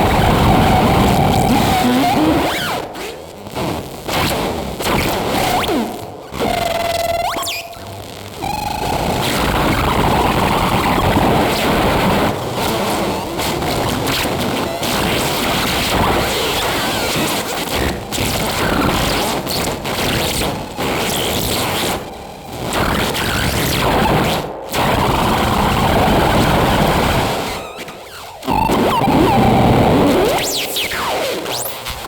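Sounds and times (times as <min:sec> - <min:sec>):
dense electroacoustic noise texture: 0:00.0 - 0:32.0.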